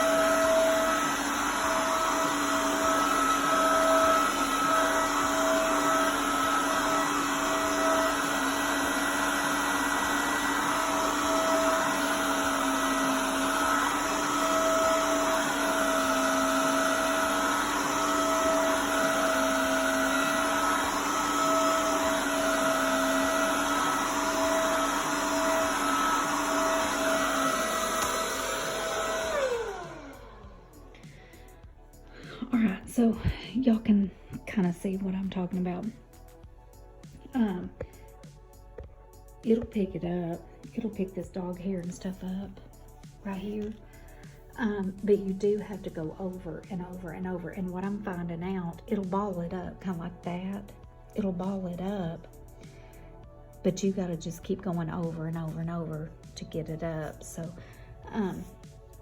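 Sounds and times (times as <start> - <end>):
vacuum cleaner motor whine: 0.0 - 36.4.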